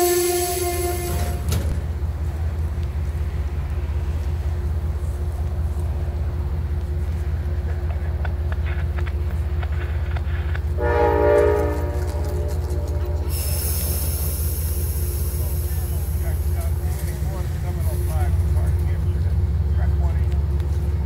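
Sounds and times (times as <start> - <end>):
train horn blast: 0.0 - 1.7, 10.7 - 13.8
train low rumble: 0.0 - 21.0.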